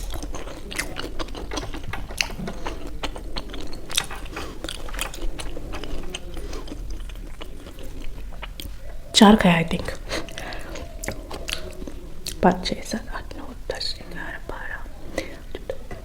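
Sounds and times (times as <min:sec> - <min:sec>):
chewing food close up: 0:00.0 - 0:16.0.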